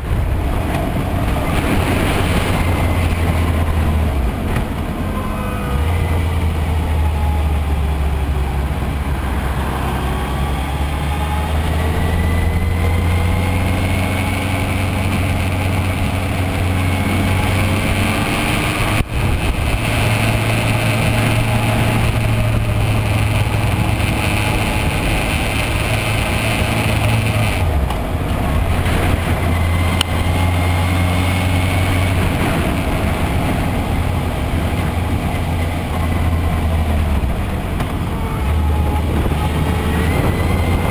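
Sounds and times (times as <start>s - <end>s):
motorcycle engine revving: 0.0s - 40.9s
steady low rumble: 12.2s - 40.9s.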